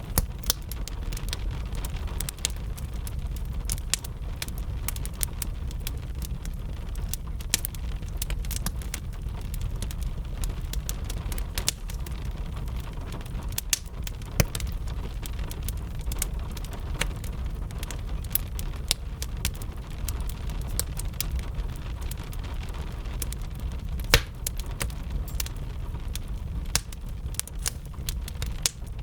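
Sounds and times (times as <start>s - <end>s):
gentle rain: 0.0s - 29.0s
wood fire crackling: 0.0s - 29.0s.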